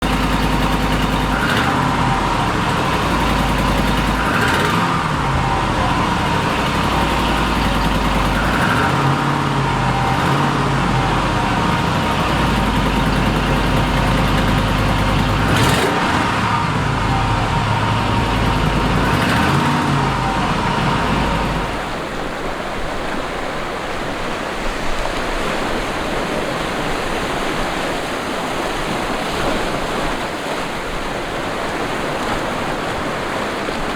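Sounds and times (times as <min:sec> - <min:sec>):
traffic rumble: 0:00.0 - 0:22.5.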